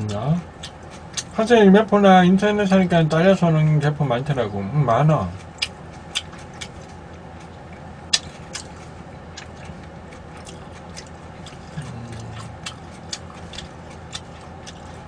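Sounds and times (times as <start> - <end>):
chewing with mouth clicks: 0.1 - 1.5, 5.2 - 15.0
person humming low: 11.8 - 12.6.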